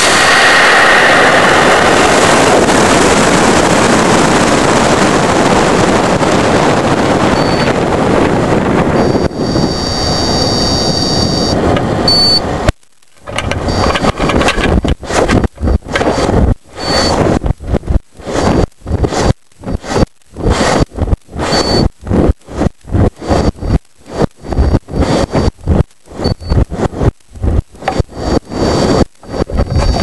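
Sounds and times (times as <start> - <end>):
rocket motor roaring: 0.0 - 30.0
wind gusts on microphone: 0.0 - 30.0
thin high steady tone: 9.0 - 12.4.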